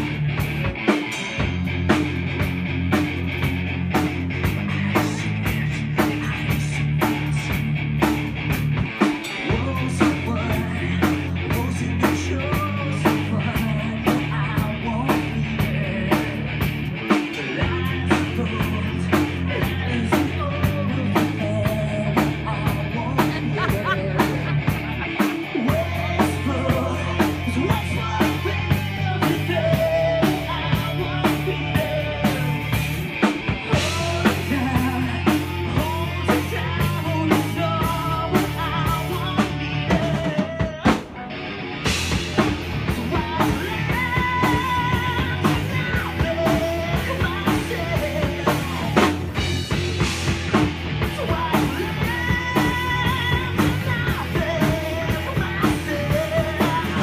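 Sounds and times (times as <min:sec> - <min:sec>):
bass line: 0:00.0 - 0:57.0
drum kit beat: 0:00.0 - 0:57.0
live rock band: 0:00.0 - 0:57.0
melodic guitar lines: 0:21.2 - 0:50.0.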